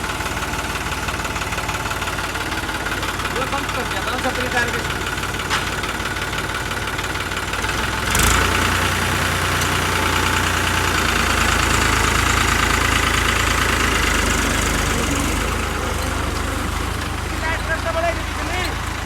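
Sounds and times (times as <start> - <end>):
tractor diesel engine running: 0.0 - 19.0
clunk: 5.4 - 6.0.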